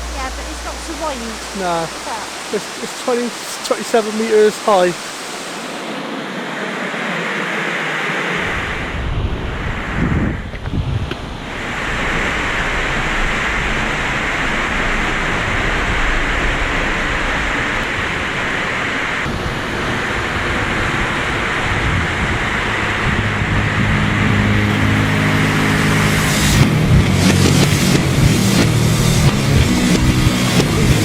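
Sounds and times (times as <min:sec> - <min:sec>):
low steady hum: 0:00.0 - 0:03.7
waterfall rushing: 0:00.0 - 0:08.8, 0:11.4 - 0:31.0.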